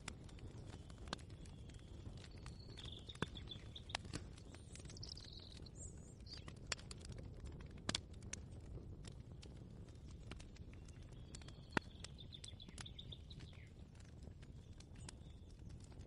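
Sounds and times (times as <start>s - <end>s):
bird chirps: 2.3s - 6.5s, 11.2s - 13.8s.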